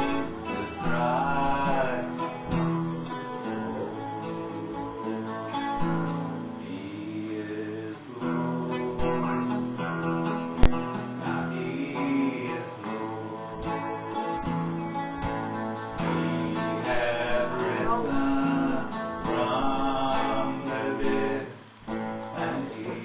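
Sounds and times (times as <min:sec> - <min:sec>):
strummed acoustic guitar: 0:00.0 - 0:23.0
sharp click: 0:10.6 - 0:10.8.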